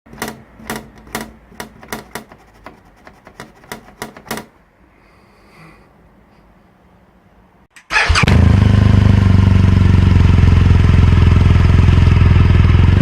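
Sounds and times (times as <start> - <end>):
sharp typewriter-like clicks: 0.1 - 4.5.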